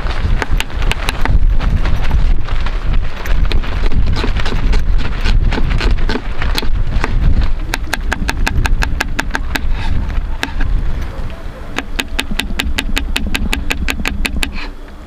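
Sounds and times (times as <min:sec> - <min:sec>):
wind buffeting microphone: 0:00.0 - 0:15.0
sharp ticks: 0:11.8 - 0:14.6.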